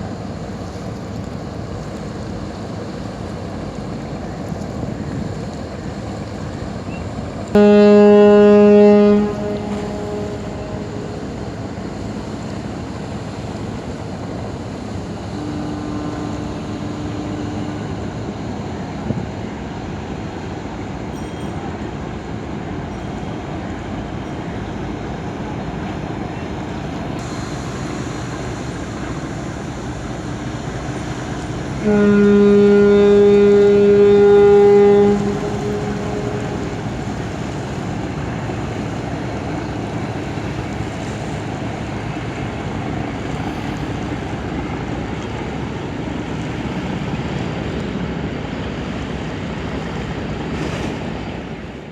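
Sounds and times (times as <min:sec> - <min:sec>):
ship's horn blast: 0:07.5 - 0:13.5, 0:14.1 - 0:20.0, 0:30.0 - 0:48.8.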